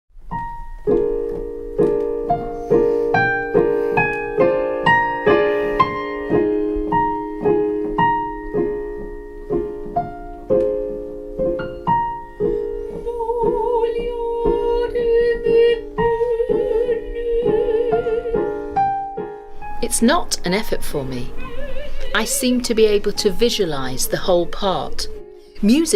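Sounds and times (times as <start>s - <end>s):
piano playing chords: 0.1s - 25.9s
soprano singing with vibrato: 12.8s - 18.8s, 20.9s - 25.9s.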